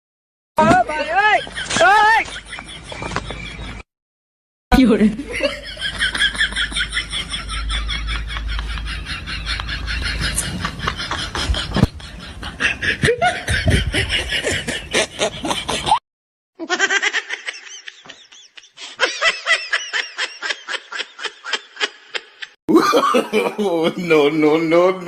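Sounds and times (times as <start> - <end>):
person laughing: 5.3 - 16.0, 16.6 - 24.0.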